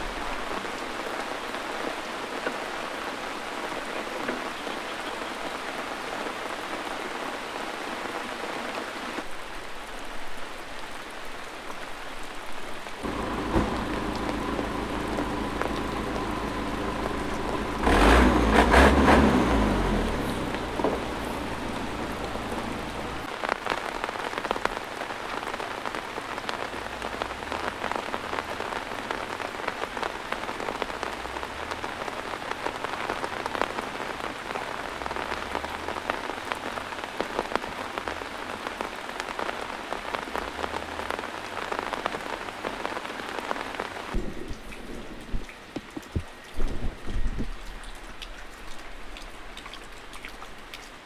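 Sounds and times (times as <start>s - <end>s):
heavy rain pouring: 0.0s - 51.0s
water drips or knocks: 13.0s - 19.4s, 20.1s - 23.2s.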